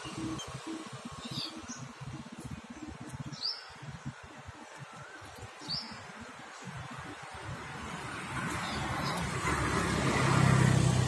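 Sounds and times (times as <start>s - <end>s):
bird chirping: 0.0s - 6.8s, 8.5s - 9.5s.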